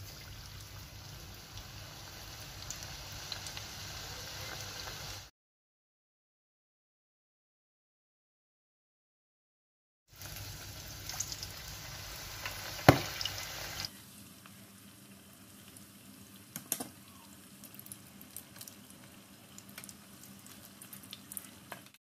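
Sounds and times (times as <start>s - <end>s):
fritters sizzling in hot oil: 0.0s - 5.3s, 10.1s - 22.0s
oil crackling and popping: 10.2s - 14.6s, 15.6s - 22.0s.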